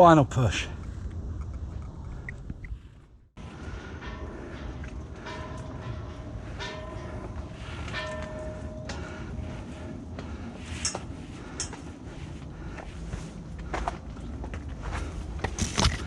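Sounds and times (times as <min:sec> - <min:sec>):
metal ladder rungs clanking: 0:03.8 - 0:09.7, 0:10.7 - 0:12.0.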